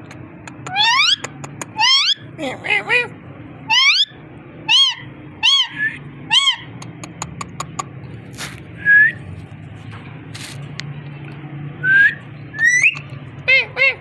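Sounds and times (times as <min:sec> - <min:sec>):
parrot calling: 0:00.7 - 0:03.1, 0:03.7 - 0:07.9, 0:12.6 - 0:14.0
parrot whistle: 0:11.8 - 0:13.6.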